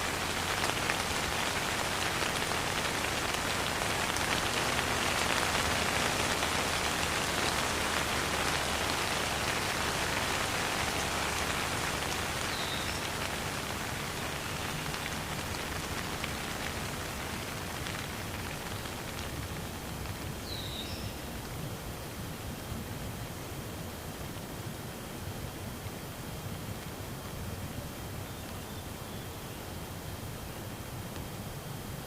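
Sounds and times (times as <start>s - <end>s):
rain pattering on surfaces: 0.0s - 23.4s.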